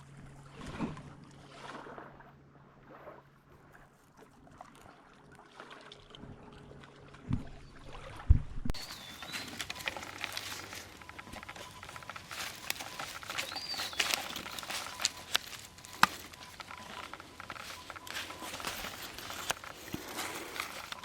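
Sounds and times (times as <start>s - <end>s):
bird whistling: 8.8s - 21.0s
rain dripping: 8.8s - 21.0s.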